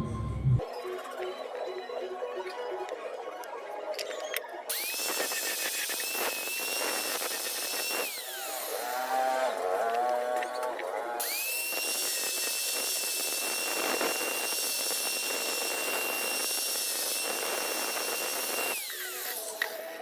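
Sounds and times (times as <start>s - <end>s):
power tool motor whining: 4.3s - 20.0s.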